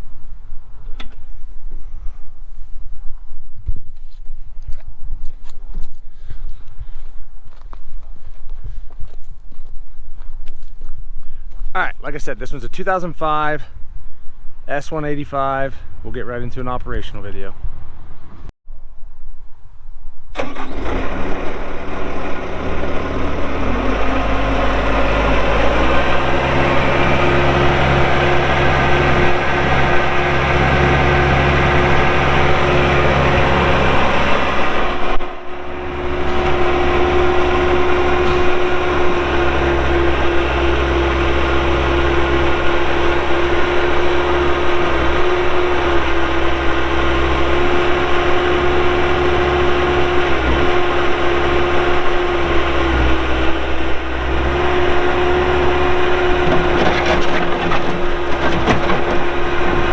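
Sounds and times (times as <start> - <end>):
diesel engine running: 20.4 - 59.9.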